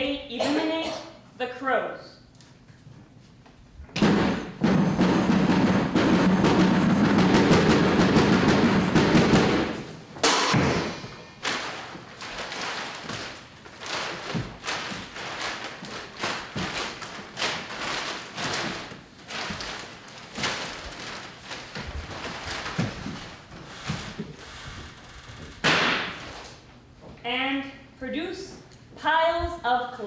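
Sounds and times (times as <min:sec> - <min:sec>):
irregular thuds and knocks: 0:03.9 - 0:26.4.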